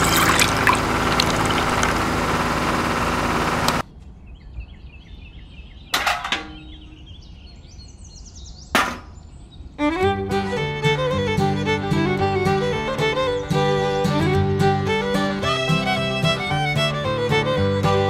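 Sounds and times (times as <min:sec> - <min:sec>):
liquid pouring and fizzing: 0:00.0 - 0:02.2.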